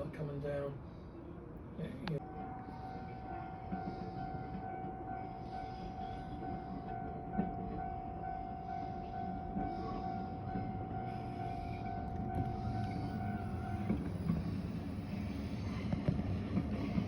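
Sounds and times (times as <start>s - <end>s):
train rumbling by: 0.0s - 17.0s.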